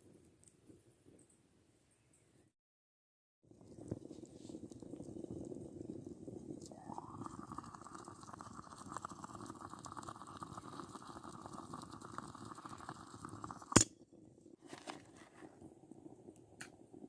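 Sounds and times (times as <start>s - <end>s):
water bubbling in a pot: 3.5s - 14.4s.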